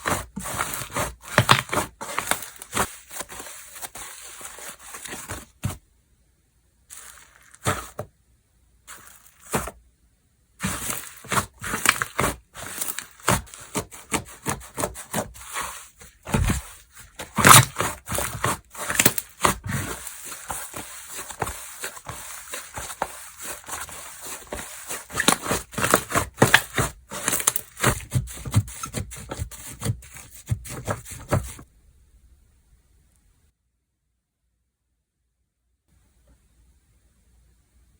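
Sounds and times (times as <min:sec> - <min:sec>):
hands squishing slime: 0:00.0 - 0:05.4, 0:10.6 - 0:31.6.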